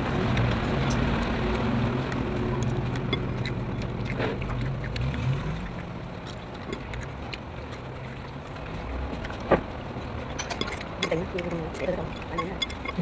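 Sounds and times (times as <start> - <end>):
vehicle engine running: 0.0 - 10.4.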